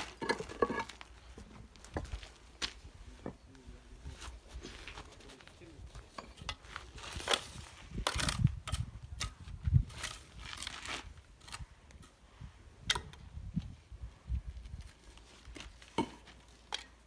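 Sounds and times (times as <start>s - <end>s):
trowel scraping stone and mortar: 0.0s - 1.2s.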